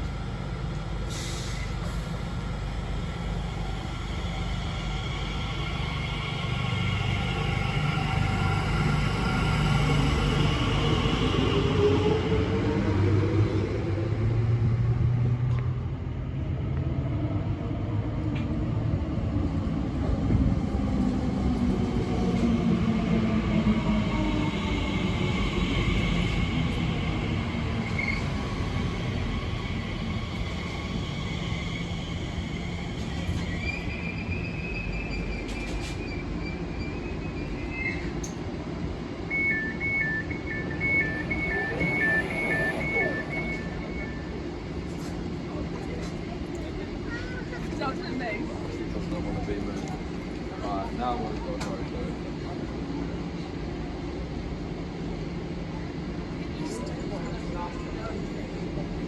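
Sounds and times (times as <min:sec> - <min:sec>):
electric train rumbling: 0:00.0 - 0:59.0
rapid two-tone warning beep: 0:39.3 - 0:44.2.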